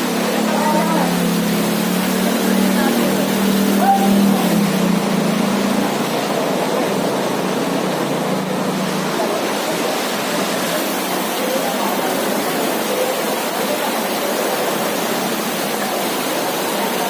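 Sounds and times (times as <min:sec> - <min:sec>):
faint voices: 0:00.0 - 0:17.0
floodwater rushing: 0:00.0 - 0:17.0.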